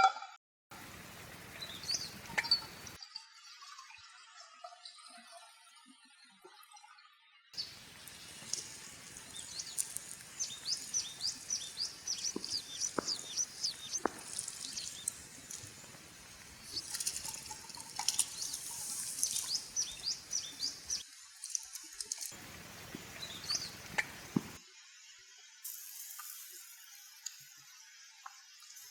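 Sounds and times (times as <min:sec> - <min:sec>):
flowing river water: 0:00.7 - 0:03.0, 0:07.6 - 0:24.6
small songbird chirping: 0:01.6 - 0:03.0, 0:07.6 - 0:21.8, 0:22.4 - 0:24.6.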